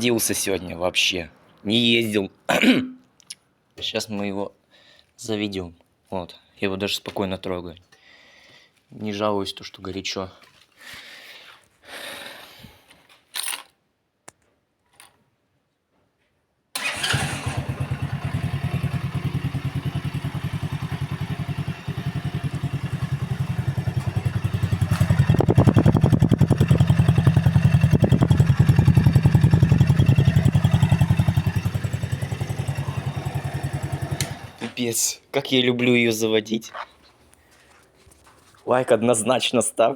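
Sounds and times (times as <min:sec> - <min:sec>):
moped engine idling: 0:16.8 - 0:34.6
starter clicks: 0:34.1 - 0:34.5.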